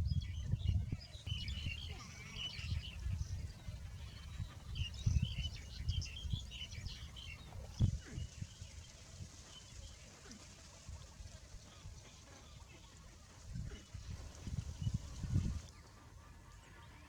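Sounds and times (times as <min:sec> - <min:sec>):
small birds chirping: 0:00.0 - 0:08.6.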